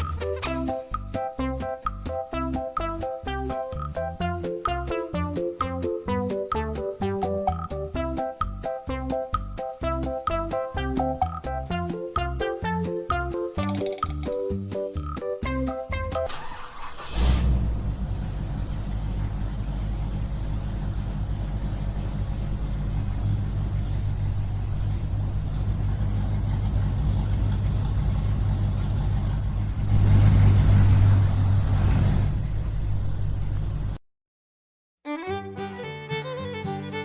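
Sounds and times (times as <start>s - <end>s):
small tractor engine running: 0.0s - 1.2s, 15.0s - 34.0s.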